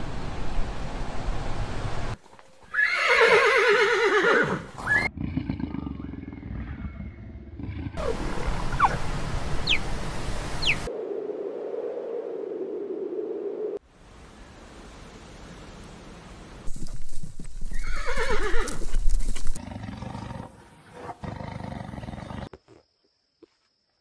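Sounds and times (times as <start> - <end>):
horse whinnying: 2.7 - 5.1, 17.7 - 19.0.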